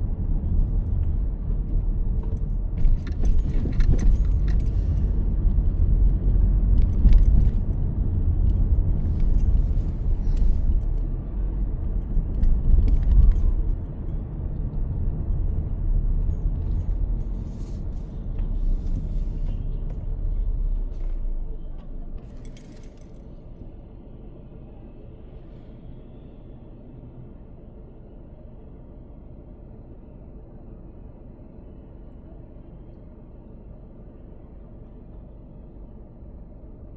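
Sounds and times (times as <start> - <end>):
car rumble from inside: 0.0 - 25.7
small clicks and jingles: 1.7 - 5.1, 22.2 - 23.4.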